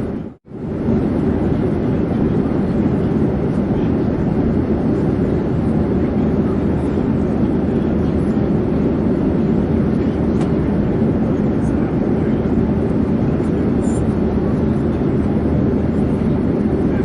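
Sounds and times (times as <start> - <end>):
airplane engine drone: 0.0 - 17.0.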